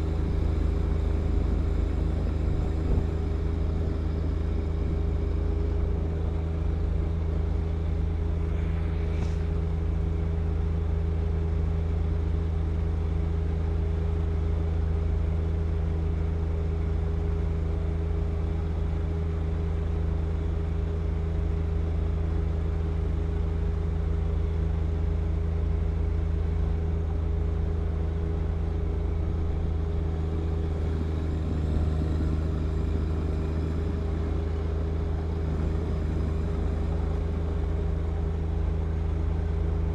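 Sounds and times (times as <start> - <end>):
tractor diesel engine running: 0.0 - 11.2, 25.0 - 39.9.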